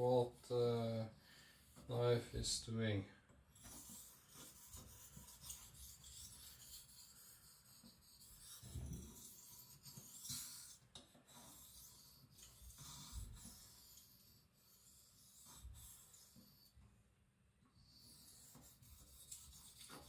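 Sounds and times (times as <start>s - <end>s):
knife rasping on whetstone: 3.6s - 16.8s, 17.8s - 20.0s.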